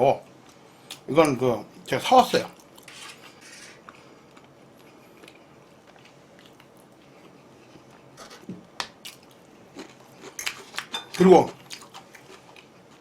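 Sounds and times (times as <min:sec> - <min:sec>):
person chewing: 0:08.9 - 0:13.0.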